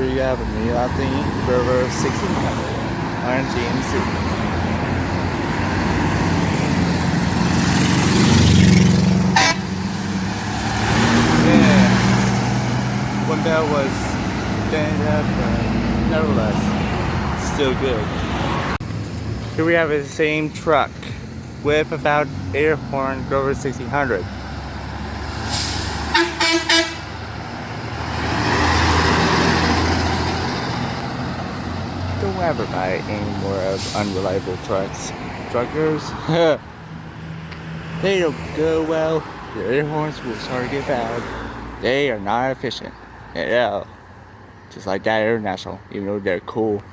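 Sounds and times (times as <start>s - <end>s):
truck engine and road noise: 0.0s - 46.9s
truck air horn: 9.3s - 10.1s, 25.5s - 27.2s.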